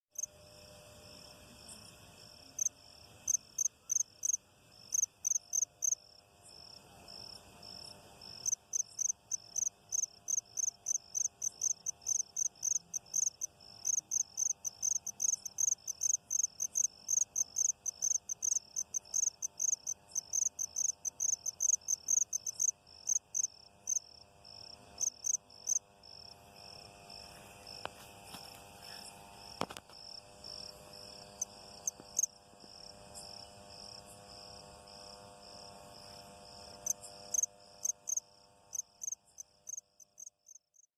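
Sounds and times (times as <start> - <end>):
high-pitched insect trill: 1.0 - 40.9
loud sharp insect chirps: 1.1 - 40.9.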